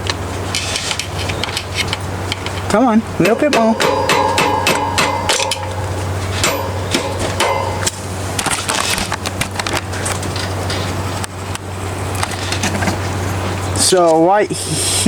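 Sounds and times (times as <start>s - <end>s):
screwdriver tapping metal: 3.2s - 8.0s.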